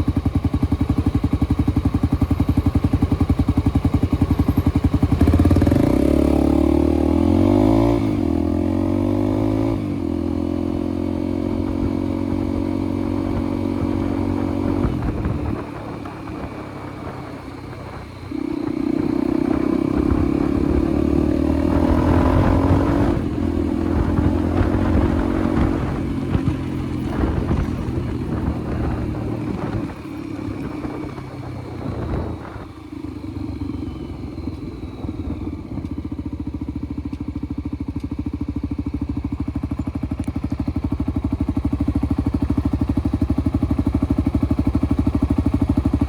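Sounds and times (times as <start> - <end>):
motorcycle engine revving and shifting: 0.2 - 46.0.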